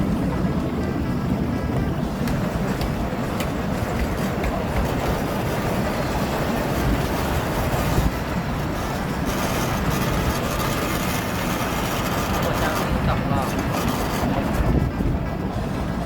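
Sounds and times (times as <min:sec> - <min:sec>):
miniature train rumbling: 0:00.0 - 0:16.0.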